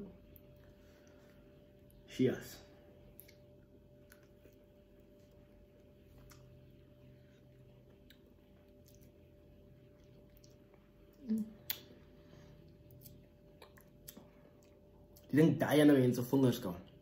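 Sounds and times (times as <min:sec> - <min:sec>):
chewing and wet mouth clicks: 0:03.1 - 0:15.3.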